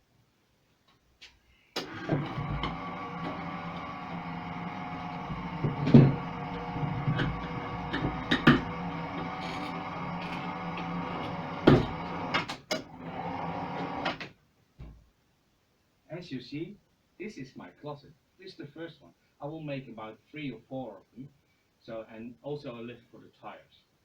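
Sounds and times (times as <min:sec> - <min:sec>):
lift motor humming: 0:01.8 - 0:14.2.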